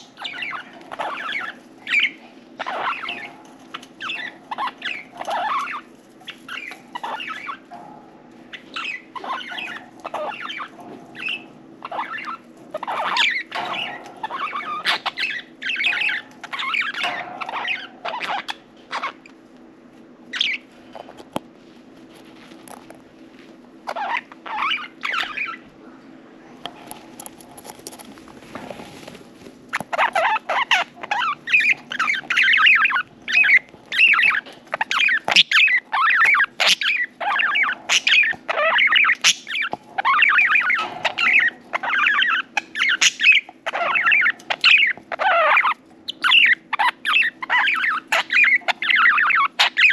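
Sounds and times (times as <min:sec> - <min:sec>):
budgerigars chirping and chattering: 0:00.0 - 0:19.3, 0:20.3 - 0:20.7, 0:23.8 - 0:25.7, 0:29.7 - 0:49.9.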